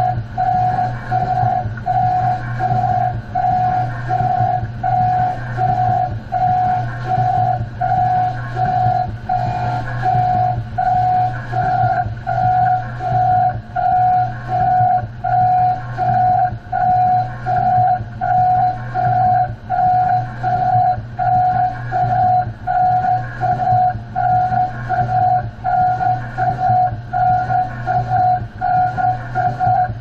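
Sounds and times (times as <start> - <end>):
low hum: 0.0 - 29.8
grinding machine pulsing whine: 0.0 - 30.0.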